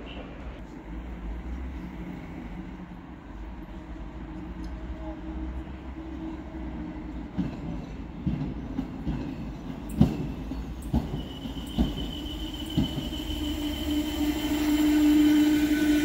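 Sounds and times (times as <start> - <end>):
railcar low rumble: 0.0 - 16.0
high steady brake squeal: 10.0 - 16.0.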